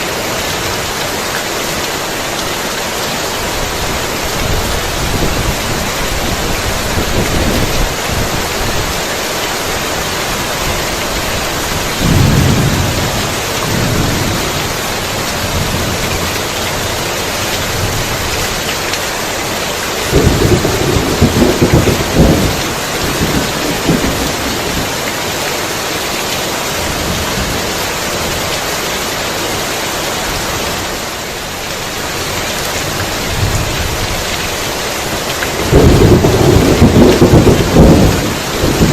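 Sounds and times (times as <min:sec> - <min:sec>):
heavy rain falling: 0:00.0 - 0:38.9
thunder rumbling: 0:10.4 - 0:18.6, 0:20.1 - 0:25.0, 0:35.6 - 0:38.9.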